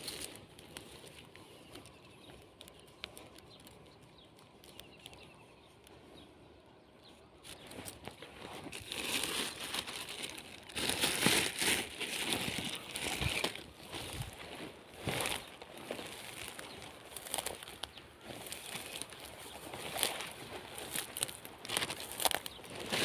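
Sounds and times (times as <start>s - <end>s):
rustling and crinkling handling: 0.0s - 23.0s
scattered clicks: 0.1s - 6.0s.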